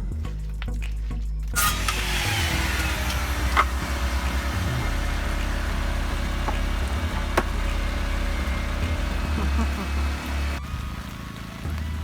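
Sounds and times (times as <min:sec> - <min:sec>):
engine idling rumble: 0:00.0 - 0:12.0.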